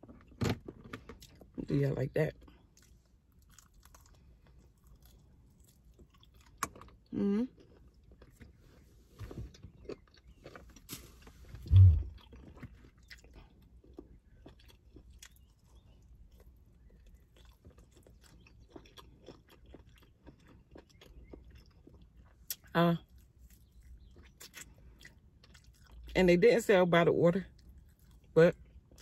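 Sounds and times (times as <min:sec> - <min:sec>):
chewing with wet mouth clicks: 0:02.3 - 0:08.6, 0:09.5 - 0:26.2, 0:27.5 - 0:29.0
low voice hum: 0:11.6 - 0:12.2.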